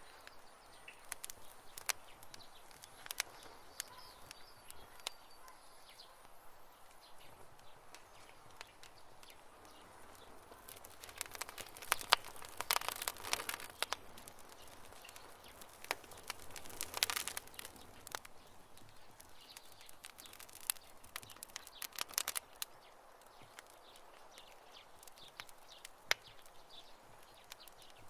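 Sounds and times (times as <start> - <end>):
campfire crackling and popping: 0.0 - 28.0
faint steady hiss: 0.0 - 28.0.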